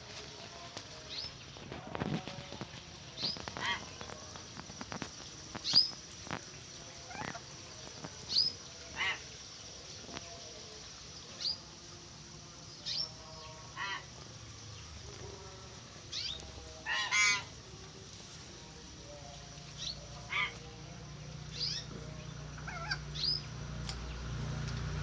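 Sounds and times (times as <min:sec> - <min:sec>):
birds harsh honking calls: 0:16.2 - 0:17.6, 0:22.6 - 0:23.4.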